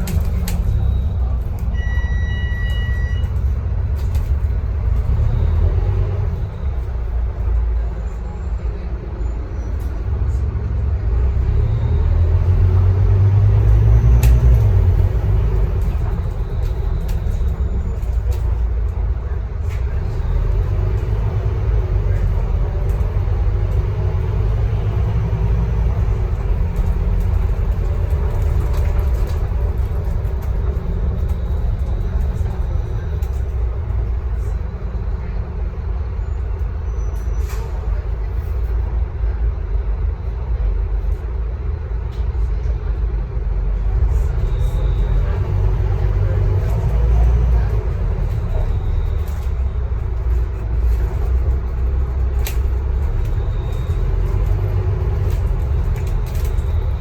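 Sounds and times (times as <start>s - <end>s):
bus engine drone: 0.0s - 57.0s.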